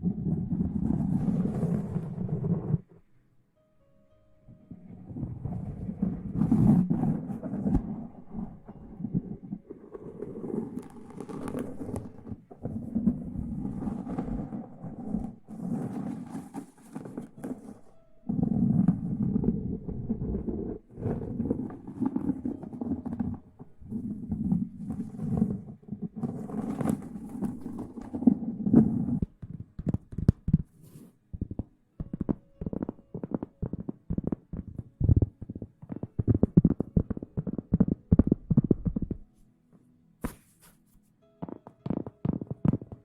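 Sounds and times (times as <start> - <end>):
muffled rubbing: 0.0 - 3.1, 4.5 - 39.5, 40.2 - 43.0
quick soft taps and crackles: 28.8 - 43.0.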